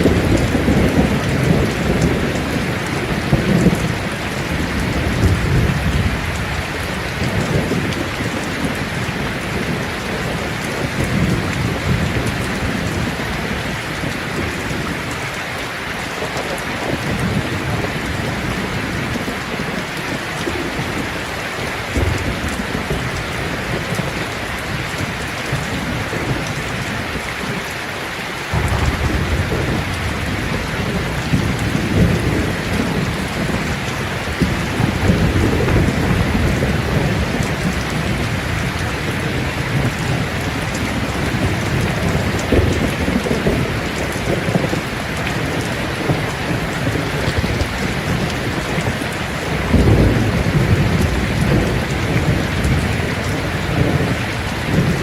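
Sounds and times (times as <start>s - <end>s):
thunder rumbling: 0.0s - 15.2s, 28.5s - 55.0s
heavy rain: 0.0s - 55.0s.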